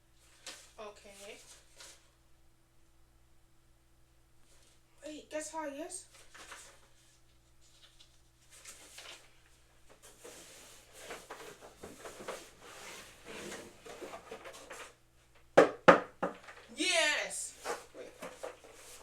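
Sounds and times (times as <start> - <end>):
packaging rustling and scraping: 6.1 - 15.0, 17.5 - 19.0.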